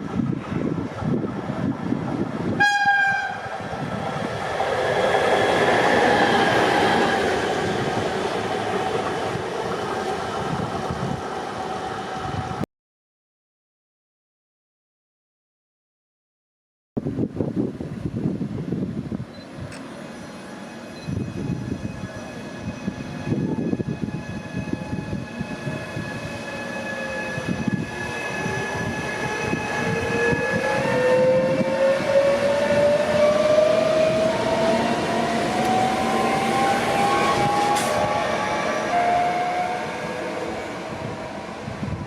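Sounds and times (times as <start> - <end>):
electric train running: 20.0 - 42.0
train motor whine rising: 26.0 - 41.7.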